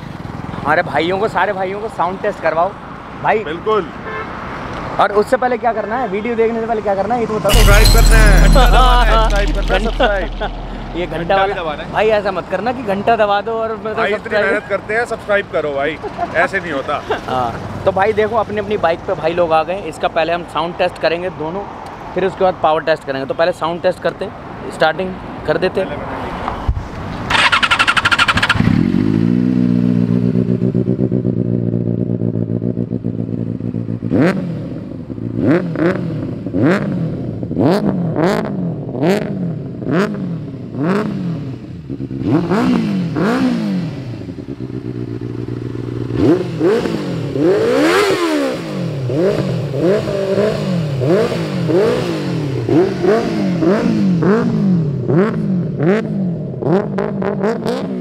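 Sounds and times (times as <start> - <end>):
motorcycle engine revving: 7.5 - 13.0, 27.3 - 58.0
motorcycle engine starting: 27.3 - 34.3
motorcycle engine idling: 44.2 - 46.2.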